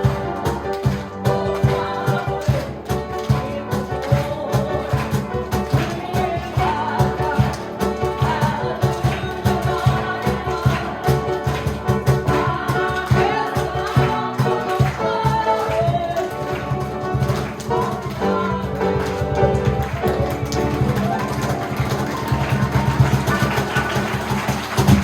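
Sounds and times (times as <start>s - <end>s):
voices singing gospel song: 0.0s - 25.0s.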